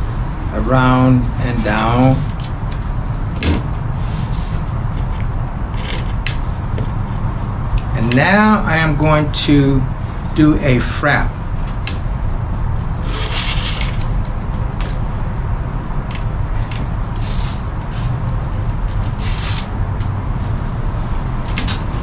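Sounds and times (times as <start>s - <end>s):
cord rubbing on wood: 12.8s - 15.2s, 16.0s - 20.6s.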